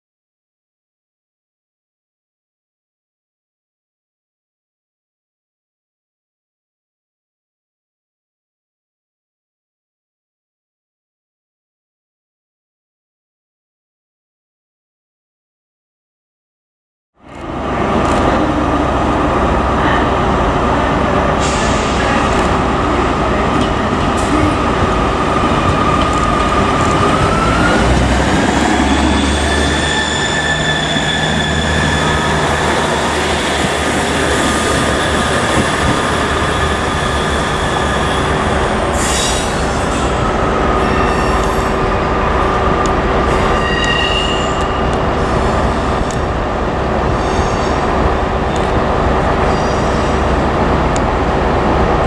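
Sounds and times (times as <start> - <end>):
train rumble and whine: 17.2 - 52.0.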